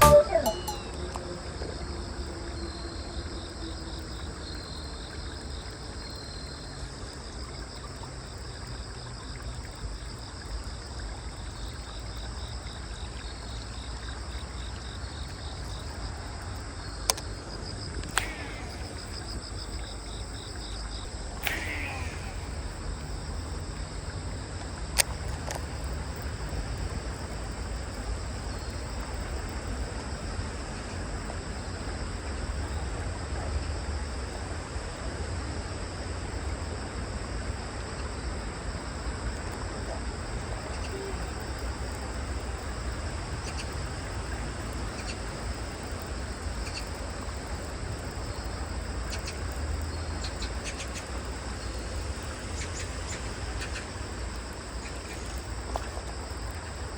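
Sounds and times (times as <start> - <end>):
sharp click: 0.0 - 1.2, 18.0 - 19.0, 21.4 - 22.6
crickets and insects chirping: 0.0 - 56.9.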